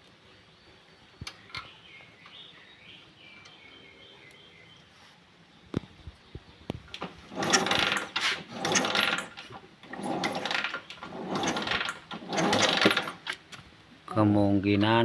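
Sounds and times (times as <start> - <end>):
motorcycle engine cranking: 6.9 - 13.5.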